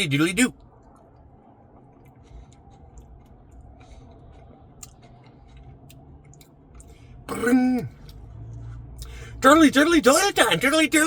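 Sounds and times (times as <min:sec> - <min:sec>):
person chewing softly: 0:00.5 - 0:09.3.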